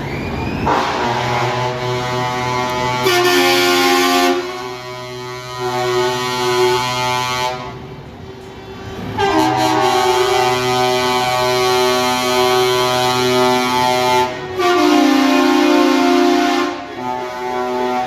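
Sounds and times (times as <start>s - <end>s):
truck air horns blasting: 0.6s - 8.1s, 8.7s - 18.0s.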